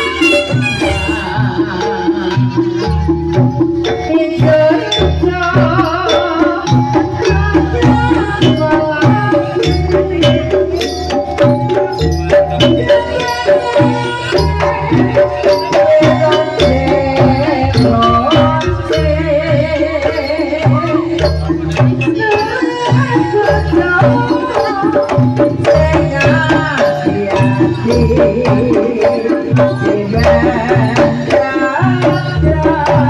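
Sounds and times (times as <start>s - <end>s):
wavering melody line: 0.0s - 3.3s
hand drums beating: 0.0s - 33.0s.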